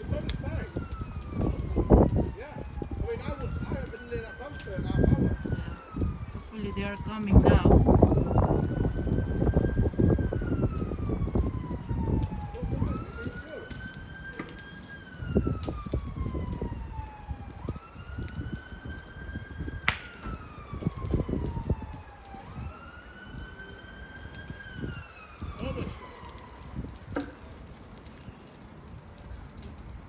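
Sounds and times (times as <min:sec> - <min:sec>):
emergency vehicle siren wailing: 0:00.0 - 0:30.0
fire crackling and popping: 0:00.0 - 0:30.0
sharp crack: 0:19.8 - 0:22.3.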